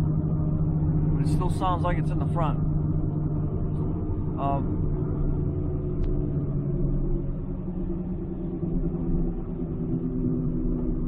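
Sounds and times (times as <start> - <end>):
car road rumble: 0.0 - 11.0
low hum: 0.0 - 11.0.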